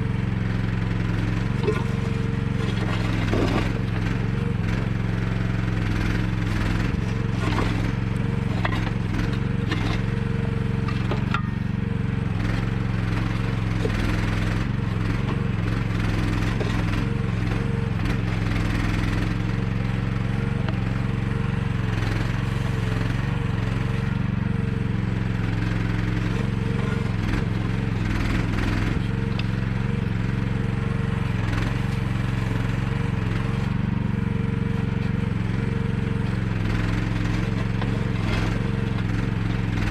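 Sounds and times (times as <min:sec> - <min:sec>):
excavator engine running: 0:00.0 - 0:39.9
high engine tone: 0:00.0 - 0:39.9
knocks and scrapes: 0:01.4 - 0:04.1, 0:06.5 - 0:11.7, 0:13.2 - 0:17.2.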